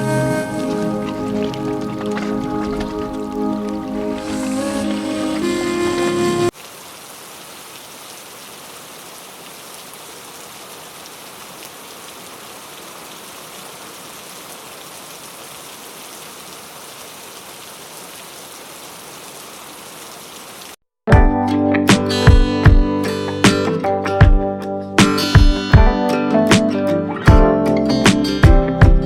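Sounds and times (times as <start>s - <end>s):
guitar music: 0.0s - 6.5s, 21.1s - 29.0s
music: 0.0s - 6.5s, 21.1s - 29.0s
steady rain falling: 0.0s - 20.8s.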